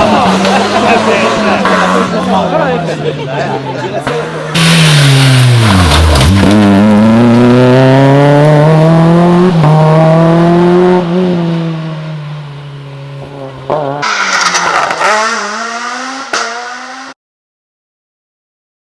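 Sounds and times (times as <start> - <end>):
rally car engine at high revs: 0.0 - 3.2, 4.0 - 17.2
rally car engine accelerating past: 4.0 - 12.2, 13.2 - 17.2.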